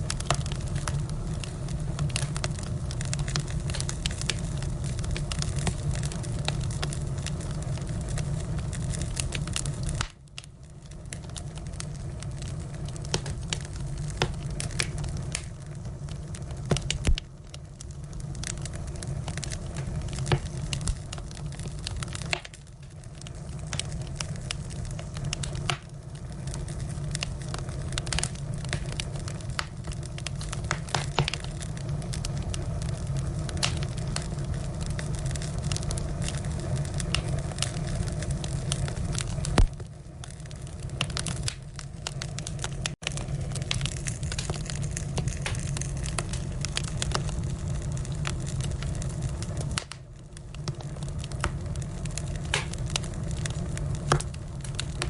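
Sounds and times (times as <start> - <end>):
fire low rumble: 0.0 - 55.0
firewood crackling and popping: 0.0 - 55.0.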